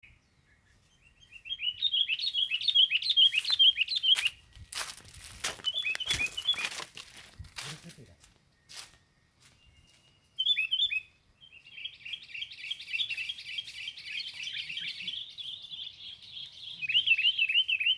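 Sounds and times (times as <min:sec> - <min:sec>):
sharp rustling crackles: 0:03.3 - 0:09.0
bird chirping down-slurred notes: 0:05.6 - 0:06.8.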